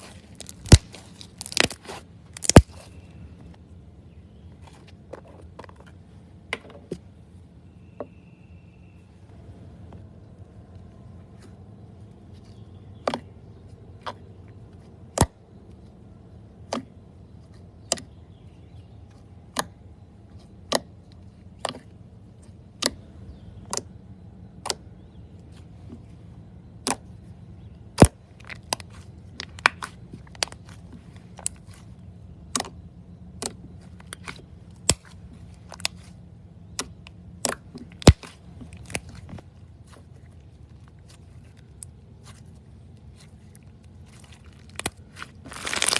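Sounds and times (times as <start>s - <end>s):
low steady hum: 0.0s - 45.9s
slime popping and clicking: 2.4s - 2.8s.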